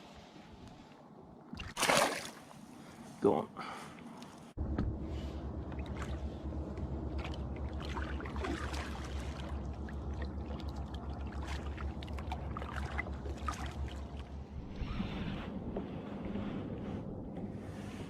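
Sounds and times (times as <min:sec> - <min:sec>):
waves lapping against a hull: 0:01.5 - 0:18.0
low wind rumble on microphone: 0:04.5 - 0:18.0.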